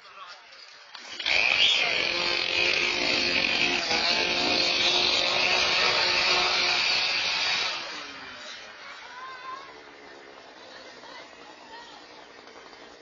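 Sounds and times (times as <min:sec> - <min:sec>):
chainsaw engine at high speed: 0:01.0 - 0:13.0.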